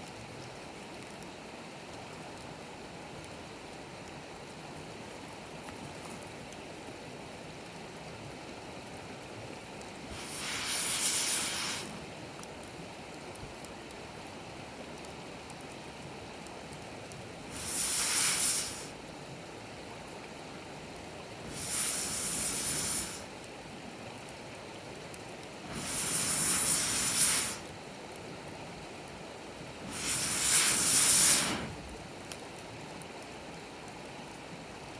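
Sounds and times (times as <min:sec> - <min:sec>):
campfire crackling: 0:00.2 - 0:34.9
loud hisses from fire: 0:10.0 - 0:12.4, 0:17.4 - 0:19.1, 0:21.3 - 0:23.5, 0:25.6 - 0:27.9, 0:29.6 - 0:32.1.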